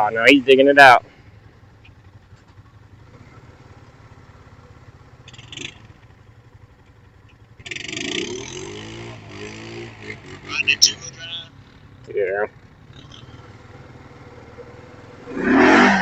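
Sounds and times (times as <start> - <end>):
engine idling: 0.0 - 15.4
rushing noise: 15.2 - 16.0.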